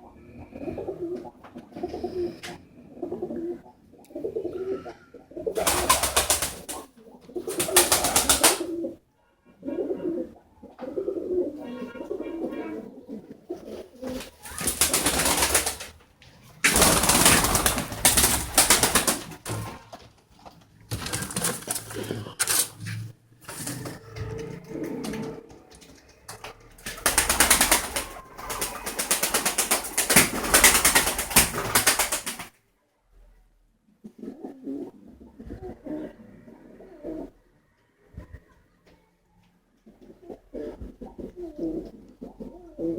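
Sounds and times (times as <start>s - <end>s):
pigeons cooing: 0.0s - 9.0s, 9.6s - 20.0s, 20.9s - 32.5s, 34.0s - 37.6s, 39.8s - 42.9s.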